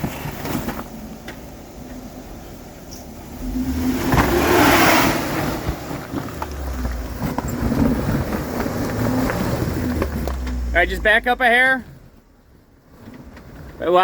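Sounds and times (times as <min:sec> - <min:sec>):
car engine revving: 0:02.3 - 0:13.7
tyres scrabbling on rock: 0:05.4 - 0:10.7.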